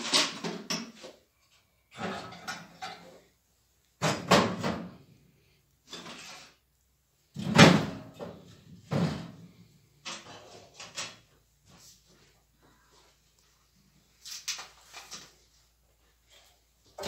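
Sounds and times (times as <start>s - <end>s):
stove door and firewood clatter: 2.0s - 3.3s.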